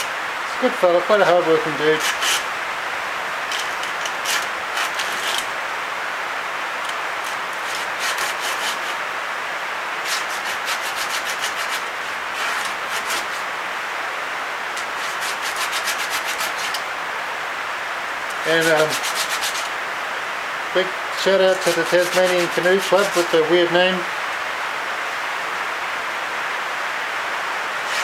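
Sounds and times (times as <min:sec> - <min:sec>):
quick scratching strokes: 0:01.2 - 0:02.5, 0:03.5 - 0:05.6, 0:06.8 - 0:09.0, 0:10.0 - 0:13.5, 0:14.7 - 0:16.9, 0:18.4 - 0:19.8, 0:21.2 - 0:23.5, 0:27.8 - 0:28.0
sandpaper rubbing on wood: 0:01.2 - 0:02.5, 0:03.5 - 0:05.5, 0:07.2 - 0:09.0, 0:10.0 - 0:13.5, 0:14.8 - 0:16.8, 0:18.4 - 0:19.7, 0:21.2 - 0:23.5.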